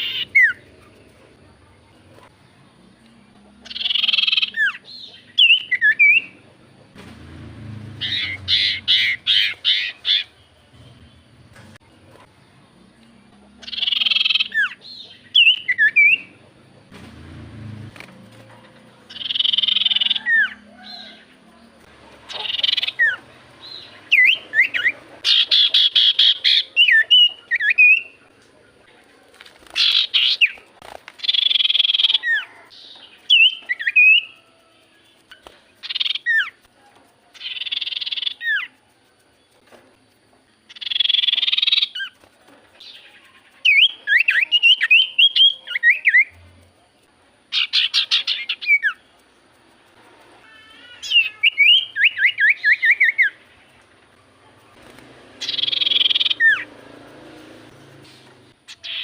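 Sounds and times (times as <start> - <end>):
bird harsh rasping calls: 0.0 - 1.0, 3.6 - 6.4, 7.9 - 11.2, 13.6 - 16.4, 18.8 - 21.3, 22.1 - 28.3, 29.6 - 34.4, 35.2 - 36.7, 37.4 - 38.8, 40.7 - 42.2, 47.5 - 49.2, 49.9 - 59.0
bird whistled notes: 5.4 - 6.3.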